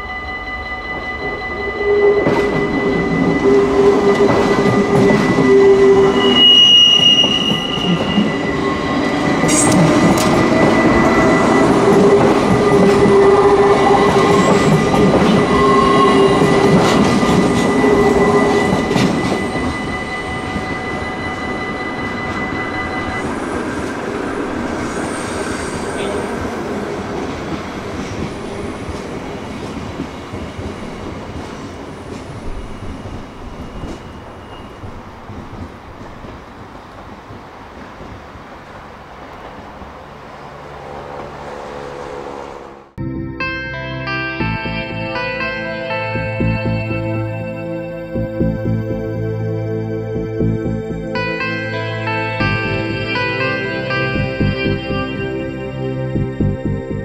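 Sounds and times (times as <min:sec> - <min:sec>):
steady high tone: 0:00.0 - 0:27.6, 0:40.9 - 0:57.0
wheels clacking and squealing on rails: 0:00.0 - 0:42.9
electric train passing: 0:00.0 - 0:57.0
train on far track: 0:00.0 - 0:57.0.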